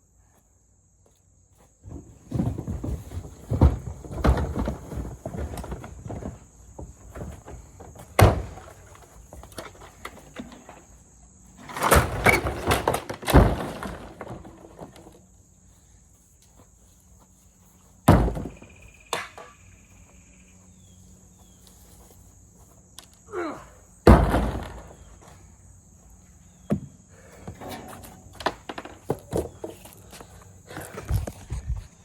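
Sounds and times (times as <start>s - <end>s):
hard plastic crashing: 1.8s - 10.9s, 11.6s - 15.2s, 18.1s - 18.6s, 24.0s - 25.4s
heavy thud: 18.1s - 18.7s, 24.0s - 25.3s.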